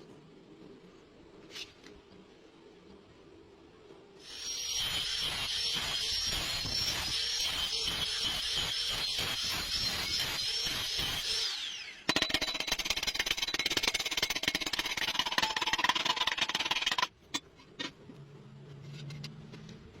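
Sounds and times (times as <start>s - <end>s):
welding arc crackling: 4.3s - 11.4s.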